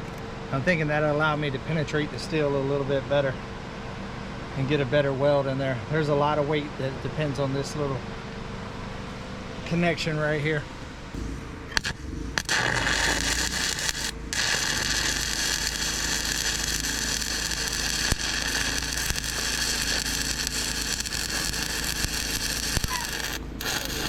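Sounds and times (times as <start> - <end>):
arc welding crackle: 11.2 - 24.0.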